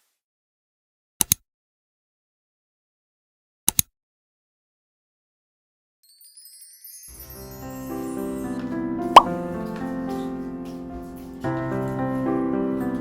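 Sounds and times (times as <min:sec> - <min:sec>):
faint chiming music: 0:06.0 - 0:10.4.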